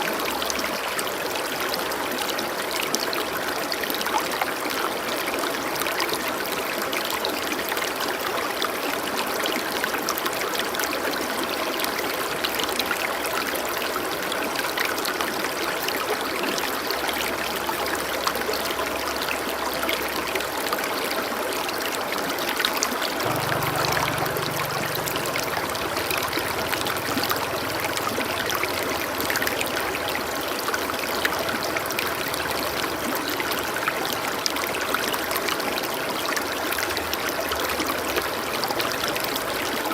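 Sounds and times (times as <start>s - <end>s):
running water rushing: 0.0s - 39.9s
faint low tone: 23.2s - 29.8s.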